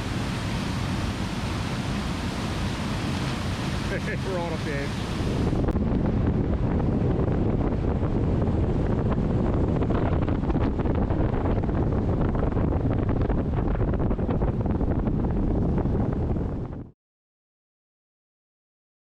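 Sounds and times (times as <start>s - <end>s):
waterfall rushing: 0.0s - 5.6s
wind buffeting microphone: 0.0s - 16.9s.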